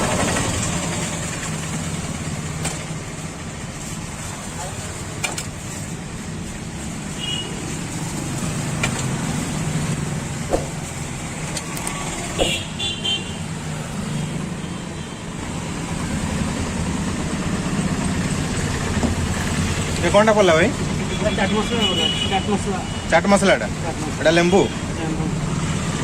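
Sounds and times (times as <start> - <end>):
rumble of passing vehicles: 0.0 - 26.0
car horn toots: 12.4 - 13.4.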